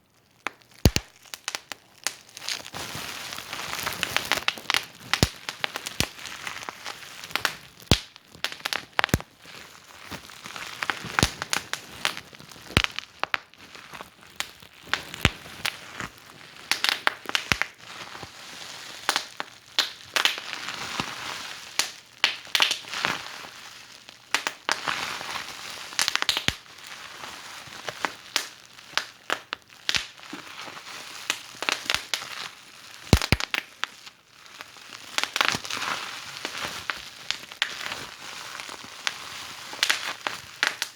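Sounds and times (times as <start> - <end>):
fire crackling: 0.4 - 17.8, 19.0 - 20.6, 21.8 - 22.9, 28.3 - 30.2, 31.2 - 32.2, 33.0 - 33.7, 36.4 - 40.9.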